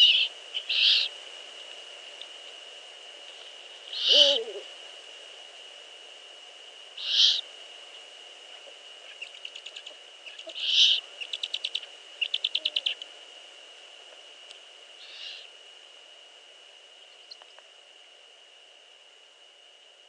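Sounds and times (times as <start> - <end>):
owl hissing rasps: 0.0 - 1.2, 3.9 - 4.7, 7.0 - 7.5, 10.2 - 13.0, 15.0 - 15.5
owl stuttering clipped notes: 7.0 - 7.4.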